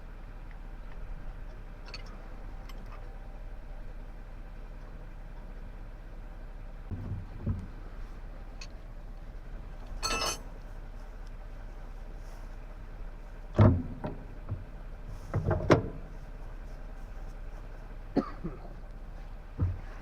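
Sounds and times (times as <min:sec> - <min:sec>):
steady low hum: 0:00.0 - 0:20.0
metal tools clinking and knocking: 0:10.0 - 0:10.5.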